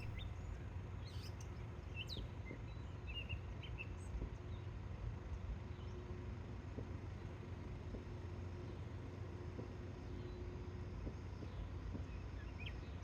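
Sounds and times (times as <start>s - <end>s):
low outdoor rumble: 0.0s - 0.2s.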